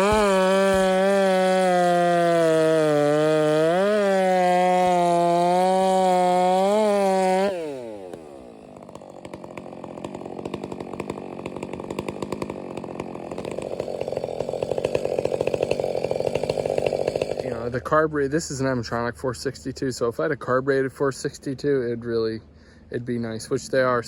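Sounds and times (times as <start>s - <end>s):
chainsaw revving and idling: 0.0s - 18.0s.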